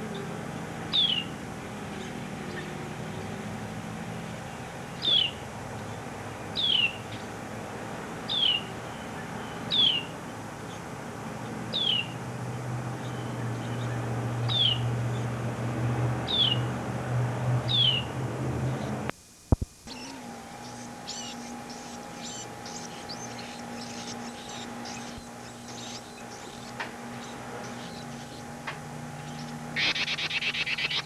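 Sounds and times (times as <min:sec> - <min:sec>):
steady low hum: 0:00.0 - 0:31.0
bird downward-slurred call: 0:08.3 - 0:10.1, 0:29.4 - 0:31.0.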